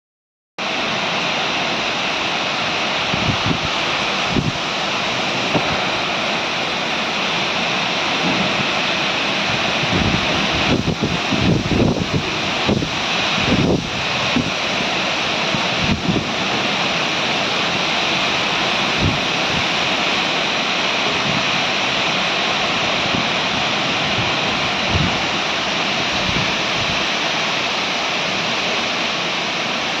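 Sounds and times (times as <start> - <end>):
heavy rain hissing: 0.6 - 30.0
wind buffeting microphone: 2.6 - 7.2, 8.2 - 16.8, 18.2 - 20.0, 21.1 - 27.2.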